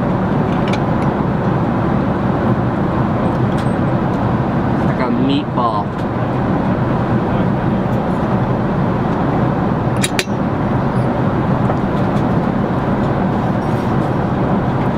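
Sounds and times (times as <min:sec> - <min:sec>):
vehicle rumbling in motion: 0:00.0 - 0:14.9
sharp click: 0:10.0 - 0:10.4.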